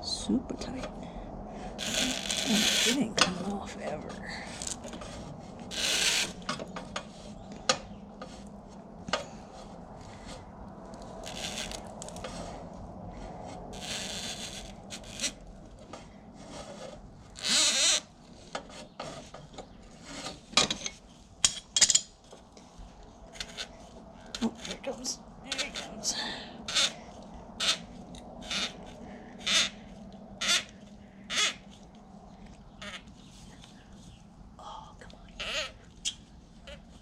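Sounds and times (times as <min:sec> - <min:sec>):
rasping scrapes: 0:01.8 - 0:07.4, 0:08.2 - 0:20.5.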